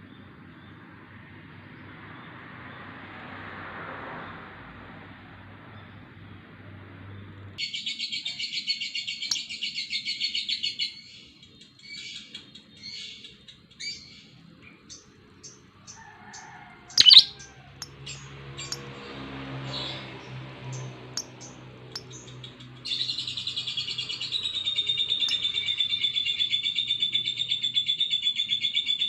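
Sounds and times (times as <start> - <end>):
lovebird trilling and chirping: 17.0 - 18.8.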